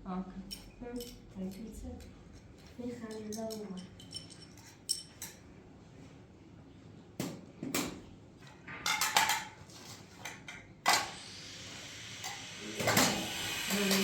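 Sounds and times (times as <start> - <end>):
clinks and knocks of hard objects: 0.5 - 5.4, 8.6 - 9.6.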